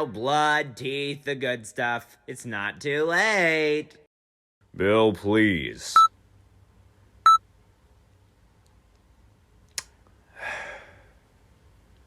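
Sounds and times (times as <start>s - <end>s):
breathy rush of noise: 10.2s - 11.2s.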